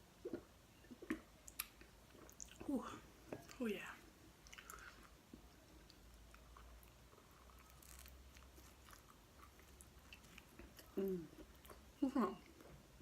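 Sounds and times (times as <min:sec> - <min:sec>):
chewing pizza: 0:04.4 - 0:12.8.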